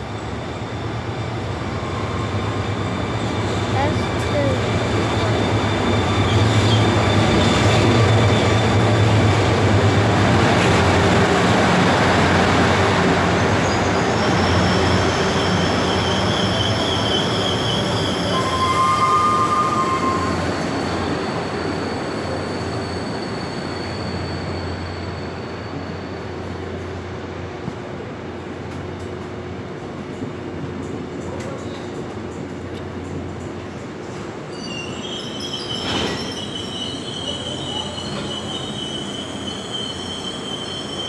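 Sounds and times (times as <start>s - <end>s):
rumble of carriages: 2.1s - 13.2s, 26.4s - 34.9s.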